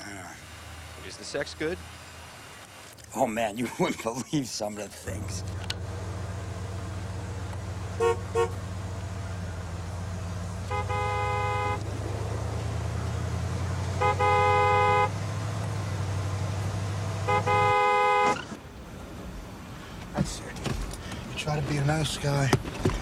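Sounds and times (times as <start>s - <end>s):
car engine running: 0.0s - 23.0s
car horn honking: 7.8s - 8.8s, 10.6s - 12.0s, 13.8s - 15.3s, 17.2s - 18.5s.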